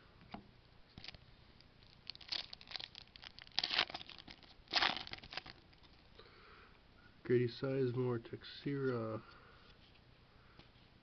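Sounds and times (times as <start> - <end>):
foil wrapper crinkling: 1.0 - 1.2, 1.8 - 6.0.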